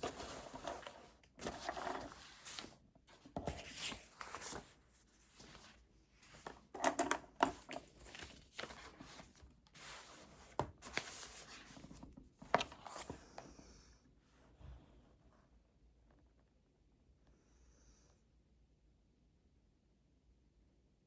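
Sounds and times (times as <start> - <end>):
paper rustling: 0.0 - 6.7, 7.4 - 13.5.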